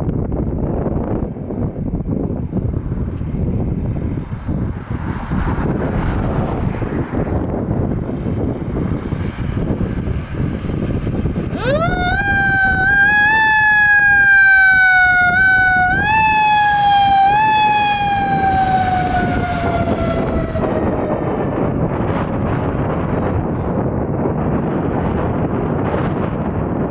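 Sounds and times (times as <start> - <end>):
vehicle rumble: 2.0 - 24.8
mechanical siren wailing: 11.4 - 22.8.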